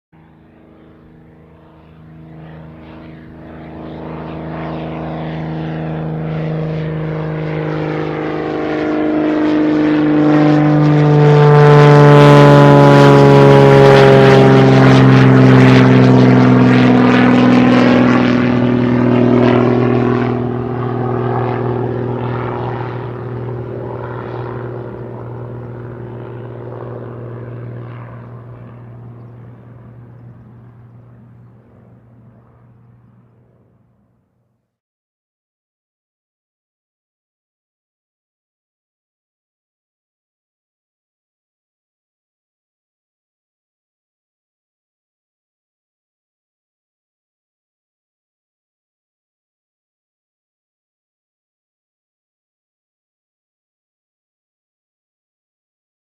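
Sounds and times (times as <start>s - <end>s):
plane flying low overhead: 0.2s - 34.8s.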